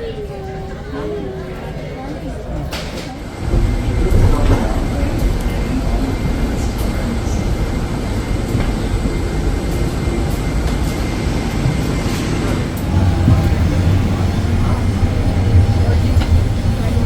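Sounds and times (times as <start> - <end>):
faint voices: 0.0 - 17.0
moving vehicle rumble: 12.6 - 17.0.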